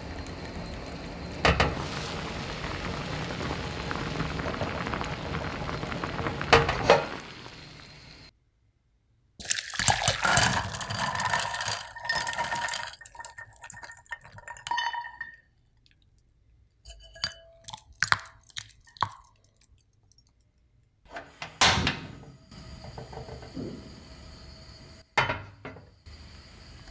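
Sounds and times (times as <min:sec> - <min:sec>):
liquid pouring into a vessel: 0:00.0 - 0:08.3, 0:09.4 - 0:15.4
kitchenware clinking: 0:10.0 - 0:15.4, 0:16.9 - 0:17.8, 0:25.2 - 0:25.8.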